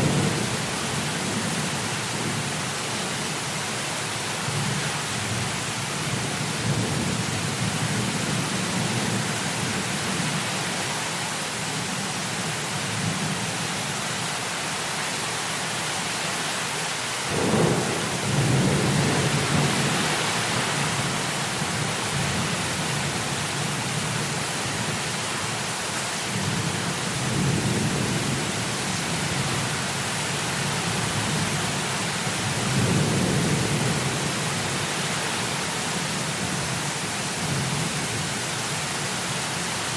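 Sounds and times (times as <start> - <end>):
heavy rain: 0.0 - 39.9
rolling thunder: 17.3 - 21.2.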